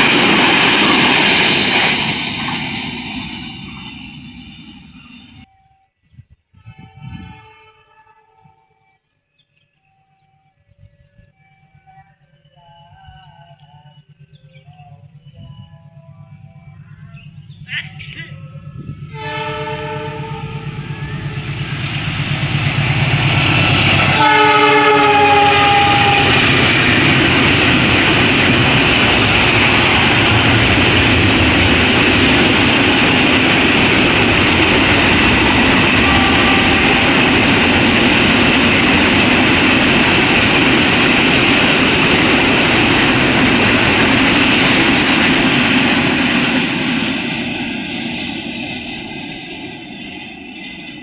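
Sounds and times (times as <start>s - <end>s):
train wheels rushing on rails: 0.0s - 5.6s, 6.2s - 51.0s
train horn: 6.6s - 9.0s, 17.7s - 40.6s.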